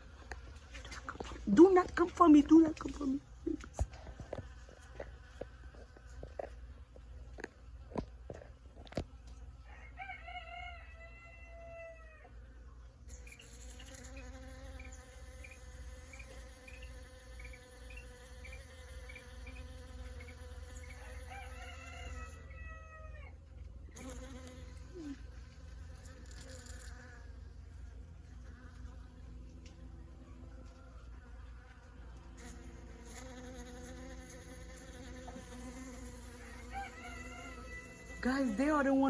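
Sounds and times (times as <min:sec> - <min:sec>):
bees buzzing: 0:13.1 - 0:22.4, 0:23.9 - 0:30.5, 0:31.5 - 0:39.0.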